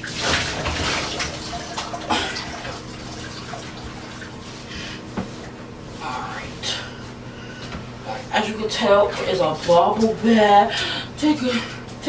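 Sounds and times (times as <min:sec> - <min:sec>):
water splashing in a bathtub: 0:00.0 - 0:05.5, 0:08.4 - 0:10.7.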